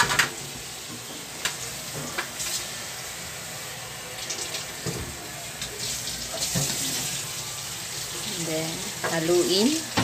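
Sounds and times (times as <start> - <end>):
meat sizzling in a wok: 0.0 - 10.0.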